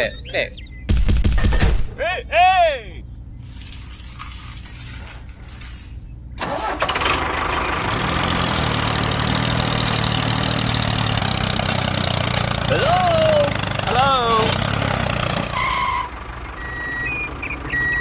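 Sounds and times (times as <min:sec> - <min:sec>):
engine starting and running: 0:06.3 - 0:18.0.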